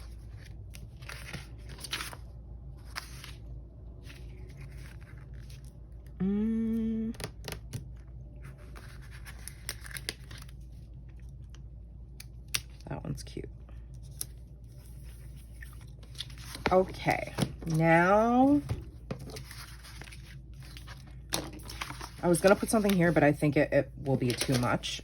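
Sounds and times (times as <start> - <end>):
paper rustling: 0.0 - 5.8, 8.4 - 10.7, 14.0 - 23.4, 24.1 - 25.0
woman humming hmm: 6.2 - 7.3.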